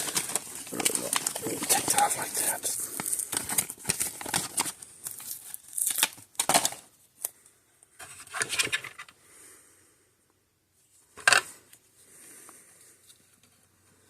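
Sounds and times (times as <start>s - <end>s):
foam tape tearing and rustling: 0.0s - 6.8s.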